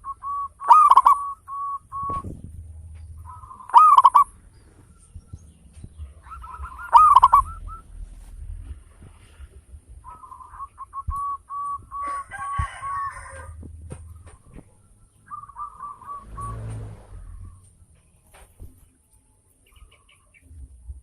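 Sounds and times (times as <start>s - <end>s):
harsh bird call: 0.0s - 2.3s, 3.2s - 5.1s, 6.1s - 8.0s, 10.0s - 17.6s
dove cooing: 0.0s - 4.5s, 6.0s - 8.2s, 9.9s - 17.6s.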